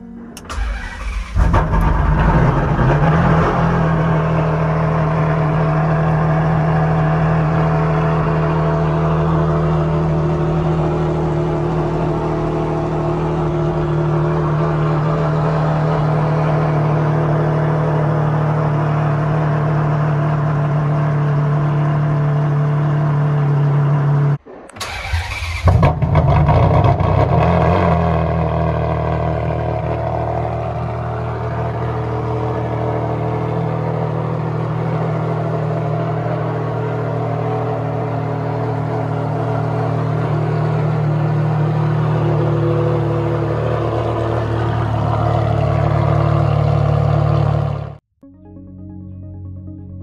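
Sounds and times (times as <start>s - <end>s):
car engine idling: 0.0s - 48.0s
engine cold start: 0.4s - 4.0s, 24.5s - 27.9s.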